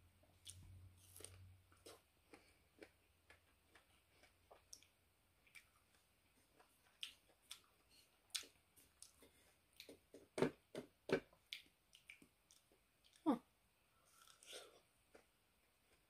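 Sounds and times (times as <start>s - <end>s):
chewing and biting fruit: 0.4s - 10.0s.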